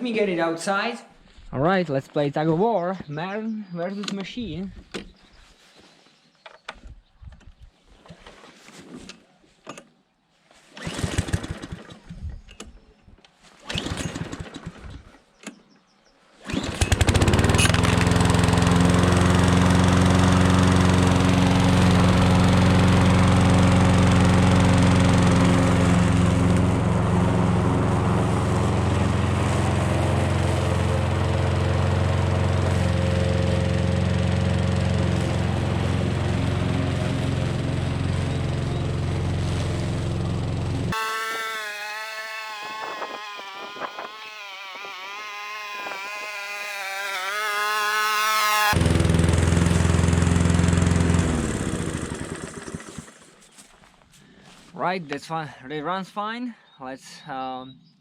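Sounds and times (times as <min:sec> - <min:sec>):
recoil starter cord yanks: 0:16.4 - 0:19.9, 0:40.9 - 0:53.3
lawn mower engine running: 0:16.5 - 0:53.5.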